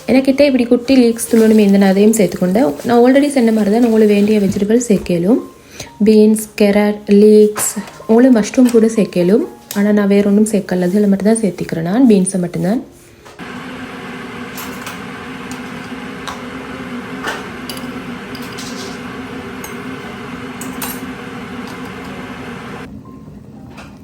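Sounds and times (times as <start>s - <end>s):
kitchen appliance humming: 13.4s - 22.9s.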